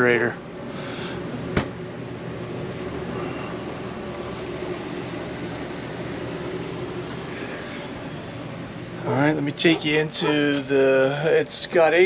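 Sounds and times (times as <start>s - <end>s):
appliance mechanical hum: 0.0s - 12.0s.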